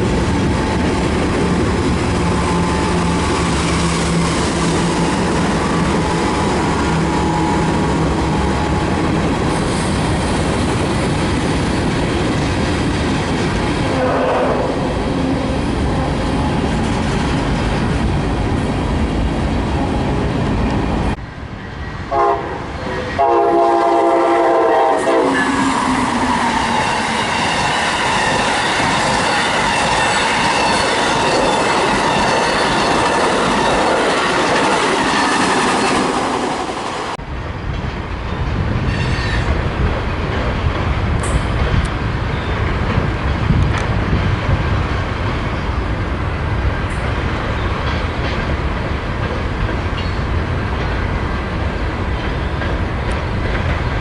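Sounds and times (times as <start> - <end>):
train wheels on rails: 0.0 - 54.0
locomotive air horn: 13.8 - 15.6, 22.1 - 25.9.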